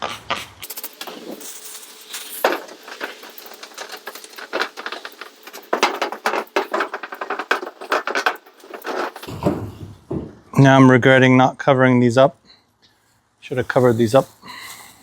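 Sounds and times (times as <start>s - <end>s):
scrubbing metal roof panel: 1.0s - 9.8s.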